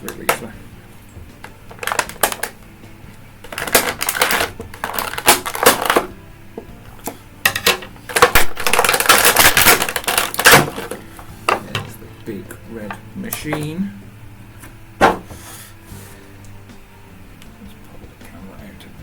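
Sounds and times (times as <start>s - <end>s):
plastic packaging clicking and crackling: 1.4s - 2.6s, 3.4s - 6.1s, 7.0s - 12.0s.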